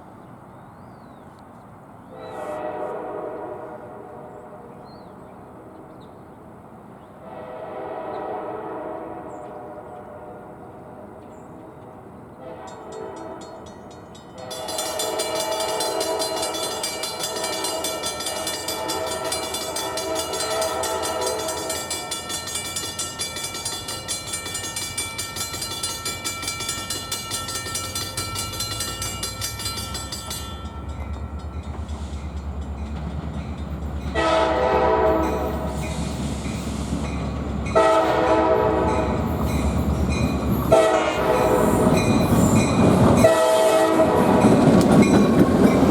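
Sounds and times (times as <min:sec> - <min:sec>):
locomotive air horn blasts: 0:02.1 - 0:04.8, 0:07.2 - 0:11.1, 0:12.4 - 0:13.6, 0:14.4 - 0:22.6, 0:34.1 - 0:36.1, 0:37.7 - 0:39.2, 0:40.7 - 0:42.0, 0:43.2 - 0:44.6
locomotive rumble: 0:14.4 - 0:45.9.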